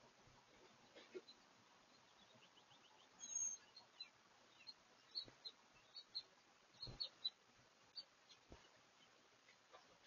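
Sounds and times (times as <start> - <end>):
faint birdsong chirps: 0.0 - 10.0.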